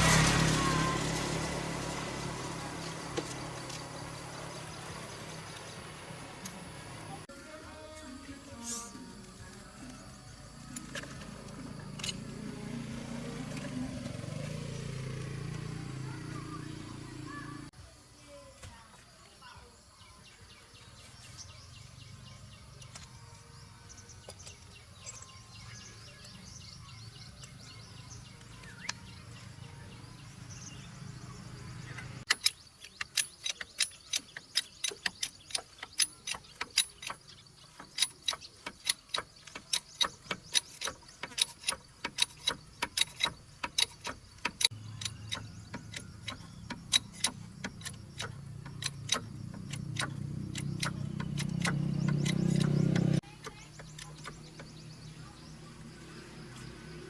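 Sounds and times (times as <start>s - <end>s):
sharp clicks or knocks: 32.3s - 54.7s.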